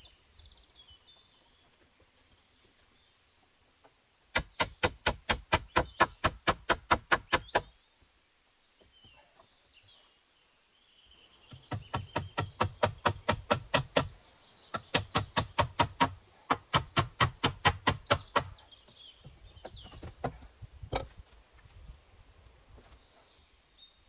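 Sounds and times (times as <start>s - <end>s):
rapid sharp knocks: 4.4s - 7.7s, 11.6s - 14.1s, 14.8s - 18.5s
faint bird chirps: 6.6s - 13.1s.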